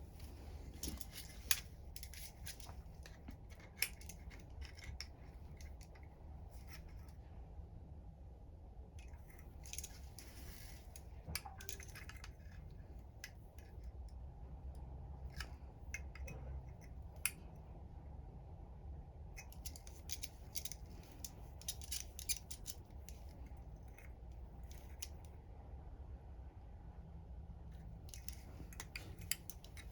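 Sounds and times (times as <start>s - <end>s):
clicks and rustling of handling: 0.0s - 7.2s, 9.0s - 14.2s, 19.4s - 25.4s, 27.8s - 29.9s
steady low hum: 0.0s - 29.9s.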